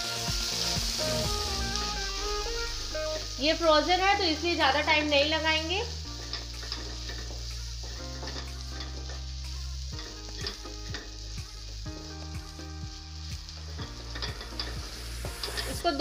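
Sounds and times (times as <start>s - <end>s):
vegetables sizzling in a pan: 0.0s - 16.0s
spatula scraping a pan: 6.1s - 11.8s, 13.6s - 16.0s.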